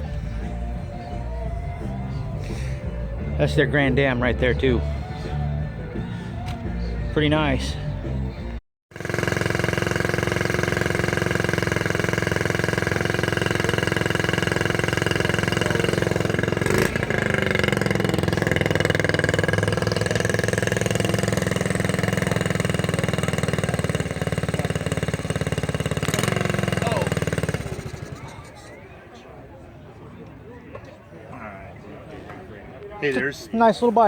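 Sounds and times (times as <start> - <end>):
vehicle engine idling: 7.7 - 28.8.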